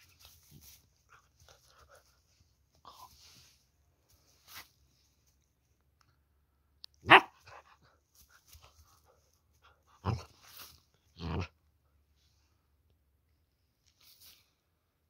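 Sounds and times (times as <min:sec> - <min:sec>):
puppy barking: 0:07.0 - 0:07.7.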